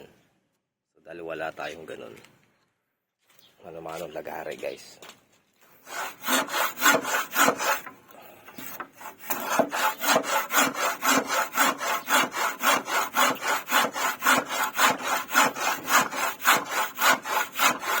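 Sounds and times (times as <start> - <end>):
handsaw cutting wood: 5.8 - 18.0.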